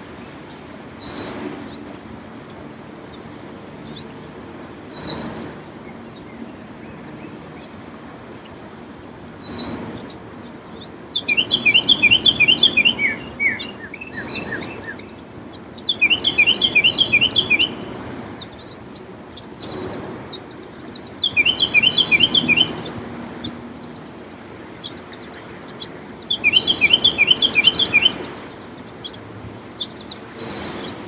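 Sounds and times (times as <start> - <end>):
small lake waves: 0.0 - 31.0
songbird singing: 0.0 - 31.0.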